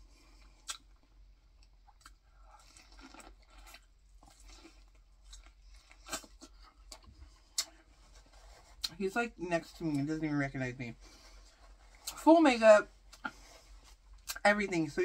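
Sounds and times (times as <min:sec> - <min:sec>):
chewing corn cob: 0:00.3 - 0:09.0.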